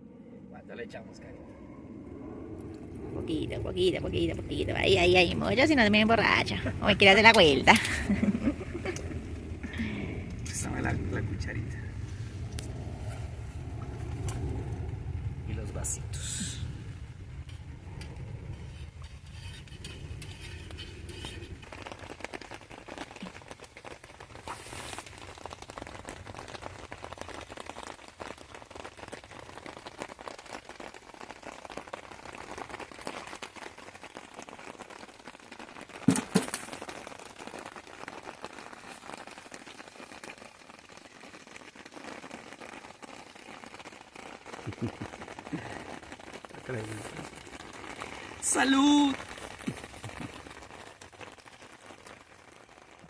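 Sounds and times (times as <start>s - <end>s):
low hum: 0.0s - 21.6s
rain patter: 0.7s - 53.0s.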